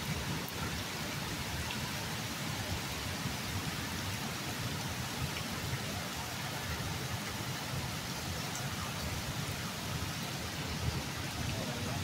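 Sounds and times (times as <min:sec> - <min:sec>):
heavy rain on pavement and leaves: 0:00.0 - 0:12.0.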